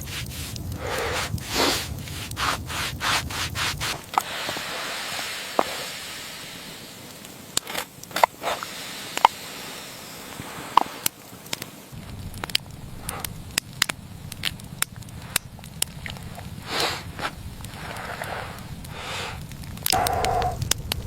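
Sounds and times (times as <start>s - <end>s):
soft steady hiss: 0.0s - 21.0s
sharp clicks: 7.1s - 9.4s, 10.7s - 21.0s
low rumble: 12.0s - 21.0s.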